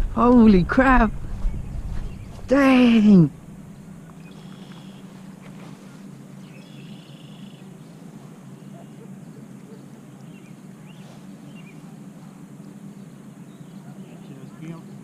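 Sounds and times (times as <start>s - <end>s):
steady low hum: 0.0s - 15.0s
bird trilling and chirping: 1.2s - 2.6s, 3.6s - 5.3s, 6.4s - 7.9s.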